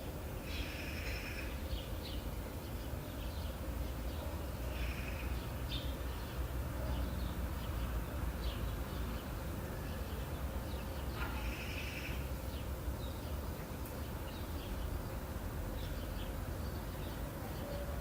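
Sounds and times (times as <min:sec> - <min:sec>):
low rumble and hiss: 0:00.0 - 0:18.0
birds calling: 0:10.6 - 0:17.9.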